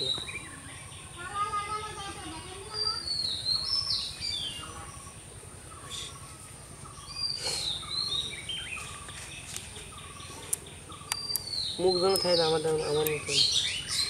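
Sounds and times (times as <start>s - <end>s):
background noise: 0.0s - 14.0s
bird whistling song: 10.9s - 14.0s.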